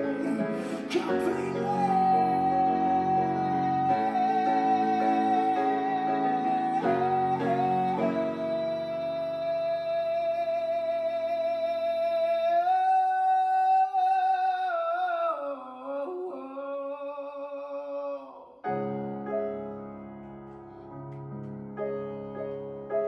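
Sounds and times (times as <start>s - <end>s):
guitar chords: 0.0s - 8.8s
keyboard chord: 0.0s - 10.0s
person singing with vibrato: 0.0s - 18.7s.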